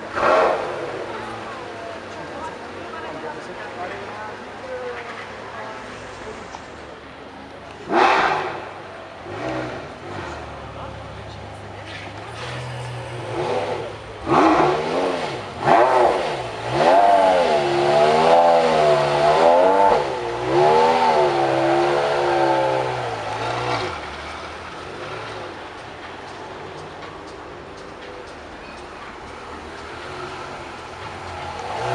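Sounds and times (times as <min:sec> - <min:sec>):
car engine revving hard: 0:00.0 - 0:01.1, 0:07.8 - 0:10.5, 0:13.1 - 0:25.5, 0:30.0 - 0:31.9.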